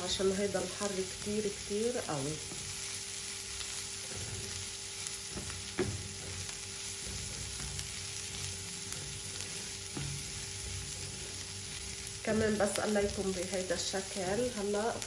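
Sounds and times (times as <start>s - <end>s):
onion sizzling in oil: 0.0s - 15.0s
spatula scraping pan: 3.9s - 12.0s.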